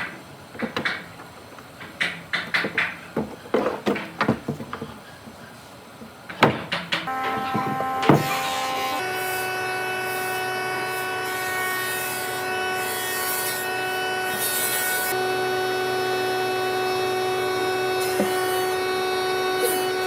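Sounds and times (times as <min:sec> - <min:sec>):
woodworking machine whining: 0:06.4 - 0:20.0.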